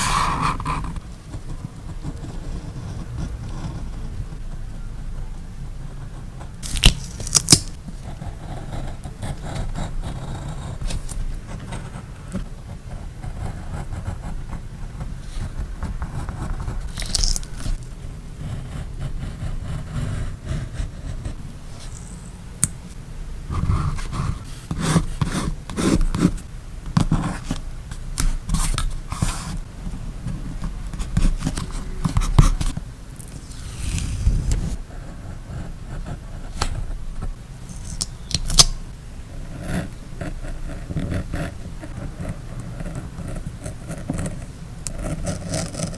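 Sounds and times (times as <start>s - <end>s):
steady low hum: 0.0s - 45.9s
paper and tape scraping and rubbing: 6.6s - 7.8s, 16.6s - 18.0s, 21.4s - 22.7s, 30.5s - 34.8s.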